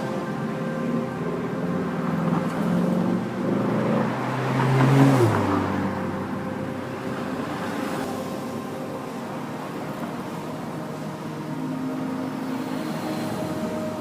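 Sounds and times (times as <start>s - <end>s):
vehicle passing by: 1.3s - 10.5s.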